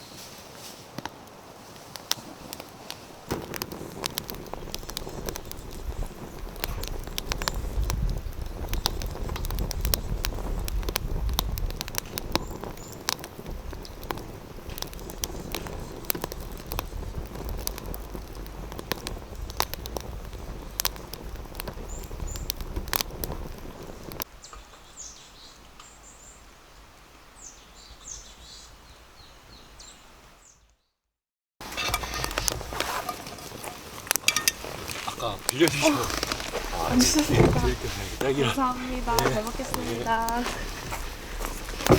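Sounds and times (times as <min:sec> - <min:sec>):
small birds chirping: 0:01.2 - 0:26.6, 0:27.2 - 0:30.9, 0:33.1 - 0:41.9
clicking and rustling: 0:31.6 - 0:41.9.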